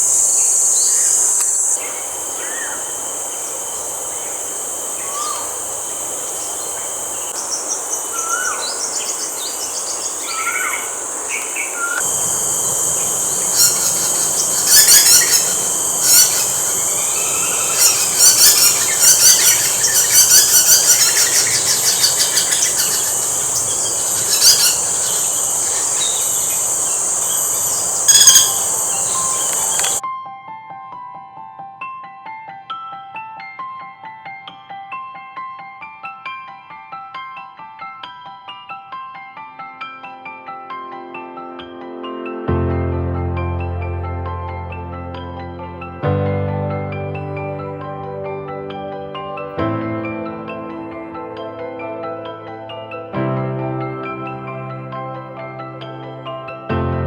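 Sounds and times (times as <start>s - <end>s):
birds whistling and chirping: 0.0s - 30.0s
high-pitched insect chorus: 0.0s - 30.0s.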